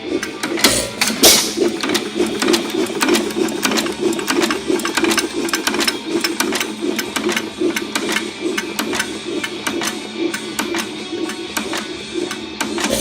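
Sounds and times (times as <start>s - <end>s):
sharp mechanical clicks: 0.0s - 13.0s
single-cylinder engine running: 0.0s - 13.0s.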